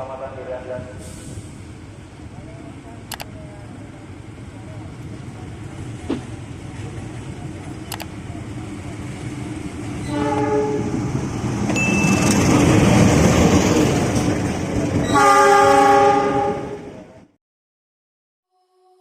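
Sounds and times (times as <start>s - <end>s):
train rumble and wheel clatter: 0.0s - 17.3s
train horn: 10.0s - 11.0s, 15.1s - 16.9s.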